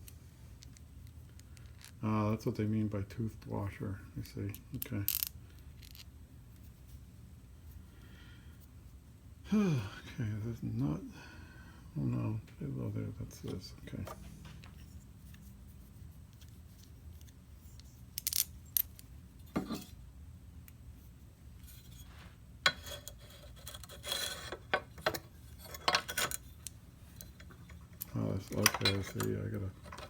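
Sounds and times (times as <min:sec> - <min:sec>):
metal hardware clinking: 0:24.6 - 0:30.0.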